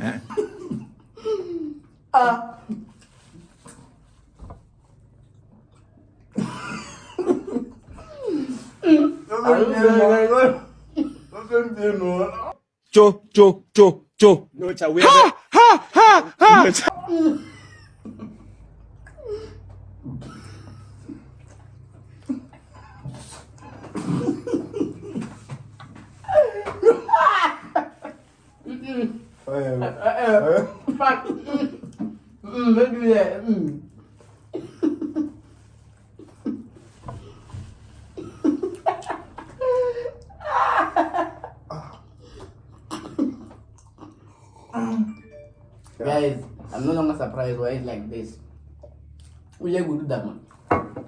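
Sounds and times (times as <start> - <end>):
people laughing: 6.4 - 12.5, 15.0 - 18.7, 22.2 - 25.5, 26.2 - 32.0, 38.2 - 42.1
person's short vocal bursts: 15.0 - 17.0.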